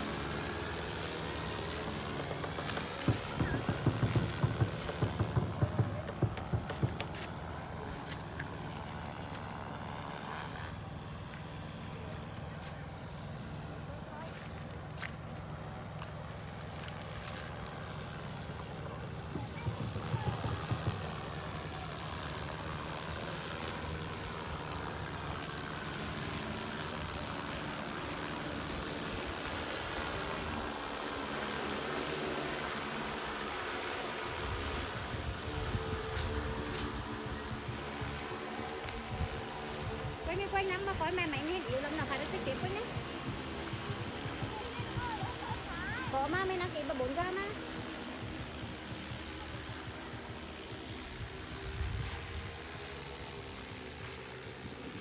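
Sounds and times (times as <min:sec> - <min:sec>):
drone rotors whirring: 0:00.0 - 0:55.0
drone humming: 0:28.1 - 0:54.0.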